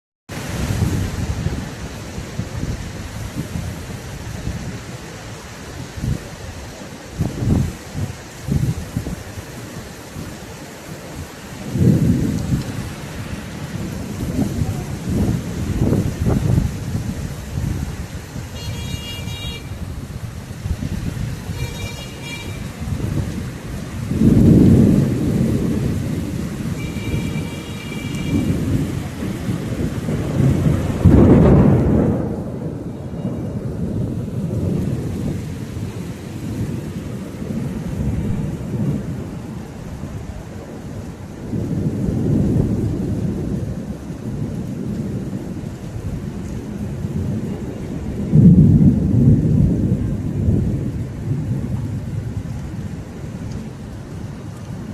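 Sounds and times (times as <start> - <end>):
steady rain: 0.3 - 54.9
thunder rumbling: 0.3 - 54.9.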